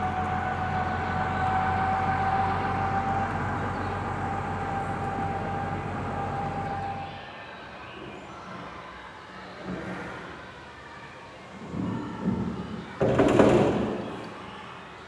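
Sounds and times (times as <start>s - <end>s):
train running: 0.0s - 10.6s.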